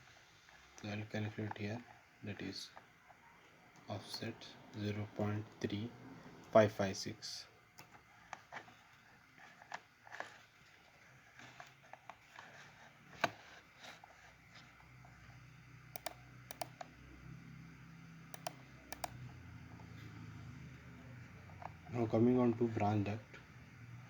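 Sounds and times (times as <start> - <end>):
faint low hum: 0.0 - 24.0
keyboard keystrokes and clicks: 15.9 - 16.9, 18.3 - 19.2.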